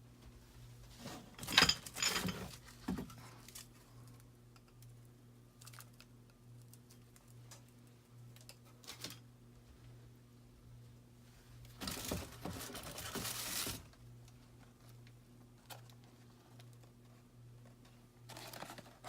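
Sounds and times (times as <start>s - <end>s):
packaging rustling and clattering: 11.8s - 14.0s, 18.2s - 19.0s.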